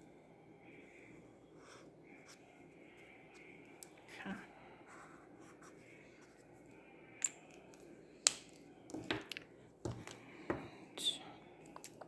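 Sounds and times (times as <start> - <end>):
marker pens clicking and tapping: 7.2 - 10.7.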